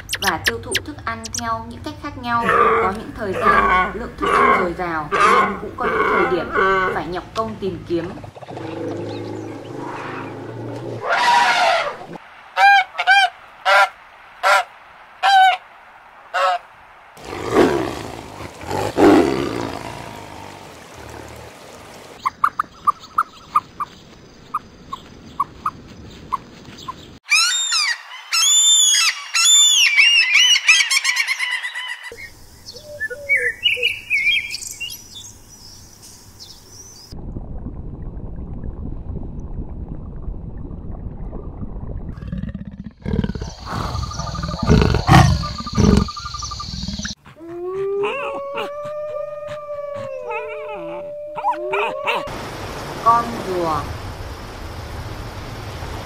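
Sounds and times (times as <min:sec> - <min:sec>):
animal and bird calls: 0:22.2 - 0:35.8, 0:43.0 - 0:52.3
low rumbling: 0:37.1 - 0:47.2.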